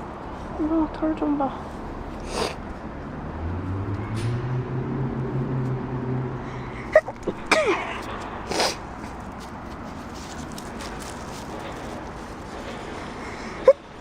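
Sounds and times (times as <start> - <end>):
cat sneezing: 2.2 - 2.6, 6.9 - 8.8.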